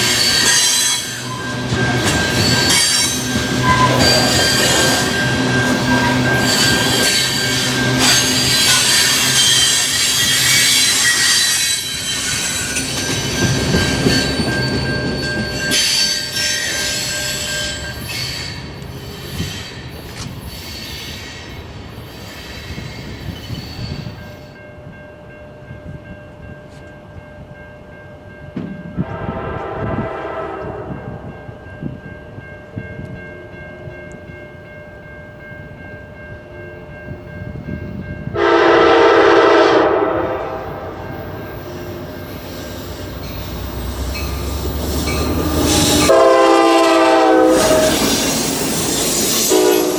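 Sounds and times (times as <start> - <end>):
train rolling past: 0.0 - 49.9
train horn blasts: 3.6 - 11.8, 29.0 - 31.6, 38.3 - 42.8, 45.4 - 48.4, 49.2 - 49.9.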